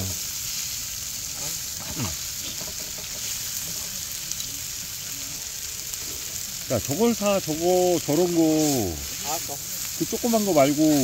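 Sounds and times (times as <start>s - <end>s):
meat sizzling on a griddle: 0.0s - 11.0s
tongs stirring food: 0.5s - 4.8s, 7.0s - 11.0s.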